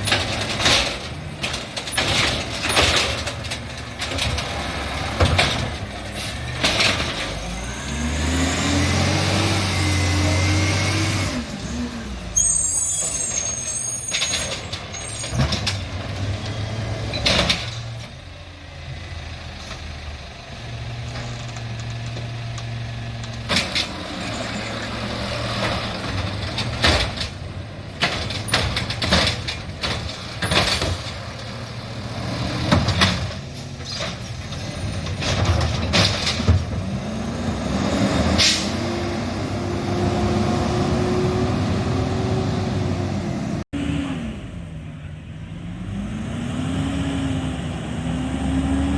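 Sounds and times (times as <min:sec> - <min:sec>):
metal clanks and bangs: 0:00.0 - 0:07.6, 0:14.1 - 0:18.3, 0:21.0 - 0:37.2
air brakes squealing and hissing: 0:06.0 - 0:06.6, 0:09.7 - 0:15.8, 0:38.4 - 0:39.0.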